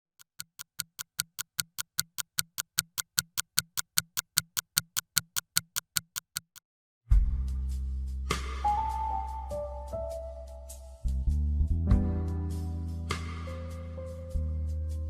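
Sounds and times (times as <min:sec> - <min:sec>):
fast clock ticking: 0:00.0 - 0:06.6.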